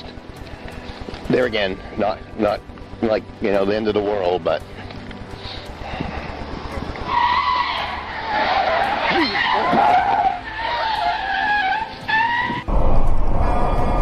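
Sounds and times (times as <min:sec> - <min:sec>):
car tyres screeching: 0:04.7 - 0:14.0.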